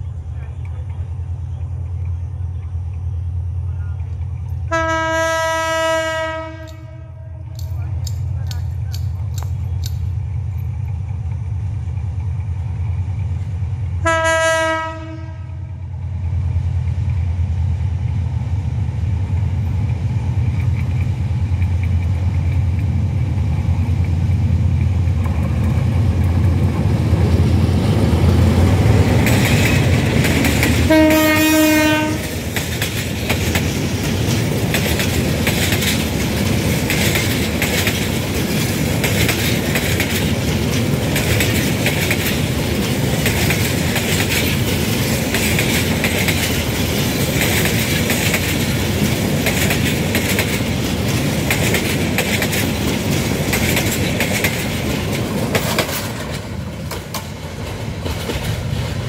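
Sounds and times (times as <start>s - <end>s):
diesel locomotive rumbling: 0.0s - 59.0s
train coaches rolling on rails: 0.0s - 59.0s
train horn blast: 4.7s - 7.7s, 14.0s - 15.8s, 30.8s - 32.4s.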